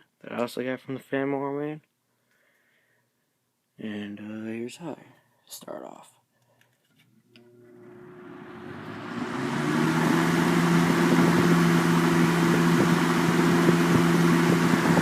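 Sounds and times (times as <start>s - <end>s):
box fan humming: 7.4s - 15.0s.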